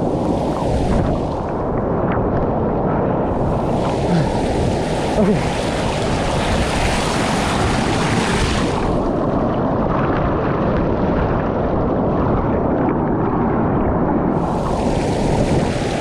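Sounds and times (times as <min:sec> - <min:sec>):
rushing river and waterfall: 0:00.0 - 0:01.6, 0:03.3 - 0:09.1, 0:13.9 - 0:16.0.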